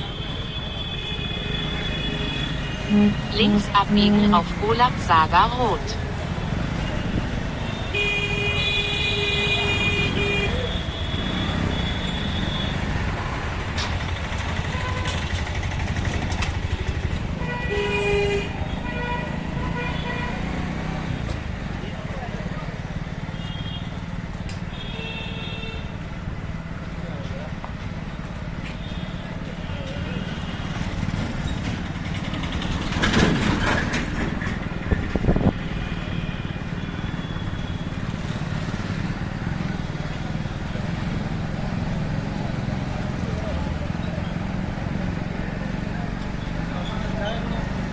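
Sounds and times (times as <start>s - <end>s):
motorbike engine and road rumble: 0.0s - 47.9s
vehicle horns honking: 6.8s - 12.9s, 14.6s - 15.3s, 17.3s - 20.6s, 24.7s - 26.0s
motorbike running rumble: 10.6s - 17.5s, 29.4s - 35.7s.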